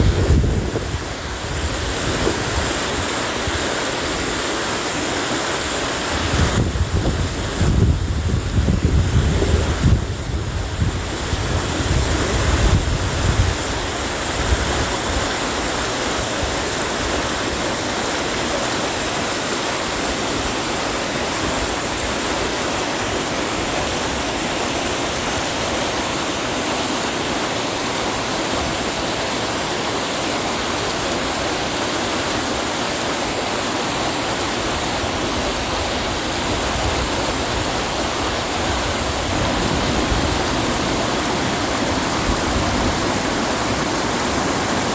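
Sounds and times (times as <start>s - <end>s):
wind buffeting microphone: 0.0s - 3.1s, 6.2s - 15.3s, 35.2s - 44.9s
stream rushing: 0.0s - 44.9s.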